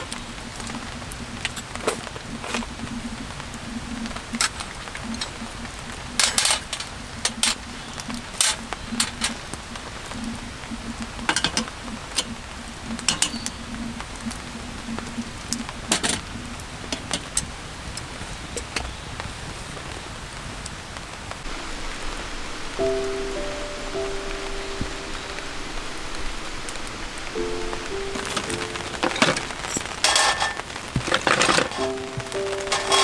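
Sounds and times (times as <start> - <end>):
rain hissing: 0.0 - 33.0
metal cookware clinking: 4.3 - 5.5, 6.2 - 9.4, 11.3 - 11.7, 13.1 - 13.6, 15.9 - 16.2, 16.9 - 17.5, 27.5 - 33.0.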